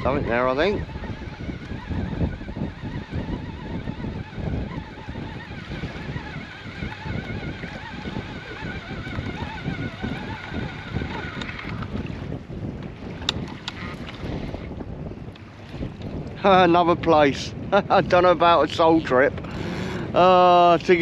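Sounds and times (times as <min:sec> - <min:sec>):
fishing reel whine: 0:00.0 - 0:12.2, 0:18.6 - 0:21.0
wind buffeting microphone: 0:00.0 - 0:21.0.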